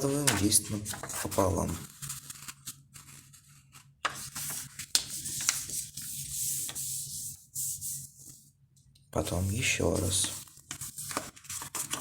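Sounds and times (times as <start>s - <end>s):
paper crackles: 0.0s - 7.2s, 9.6s - 12.0s
paper rustling and rubbing: 0.0s - 8.5s, 9.5s - 12.0s.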